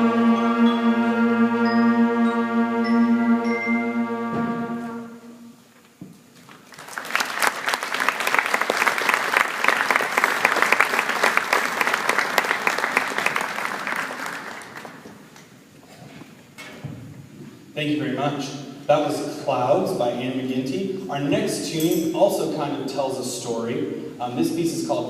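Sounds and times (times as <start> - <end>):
concert band holding chord: 0.0 - 5.6
audience applauding: 6.4 - 15.3.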